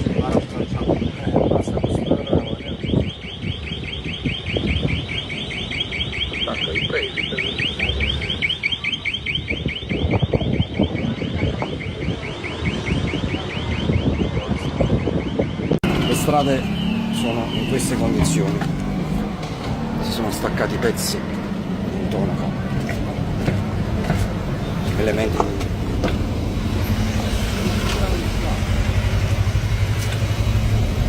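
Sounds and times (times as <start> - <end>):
car alarm warbling: 0.0 - 23.3.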